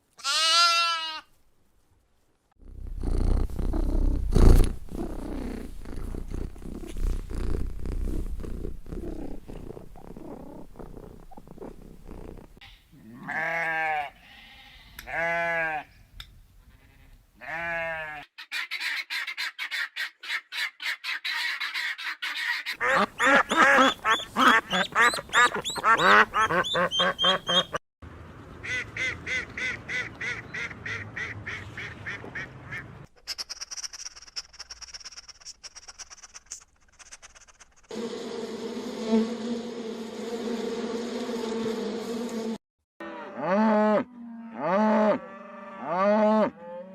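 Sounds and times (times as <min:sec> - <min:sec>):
fast animal calls and chatter: 0:20.9 - 0:27.8, 0:33.2 - 0:37.9
drawn-out animal calls: 0:21.4 - 0:27.8.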